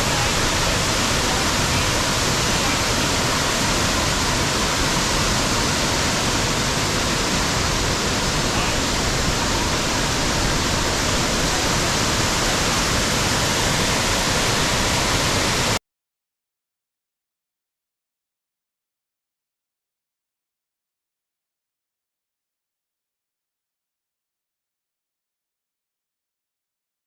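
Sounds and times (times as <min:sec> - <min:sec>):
waterfall rushing: 0:00.0 - 0:15.8.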